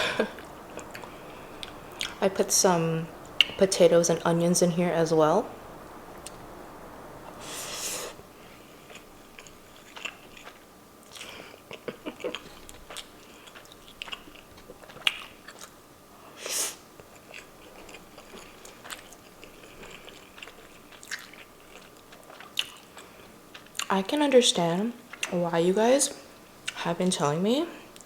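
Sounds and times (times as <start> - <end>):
person chewing food: 0.0 - 2.3, 8.4 - 23.9
short hissing sounds: 5.5 - 8.9, 16.4 - 16.9.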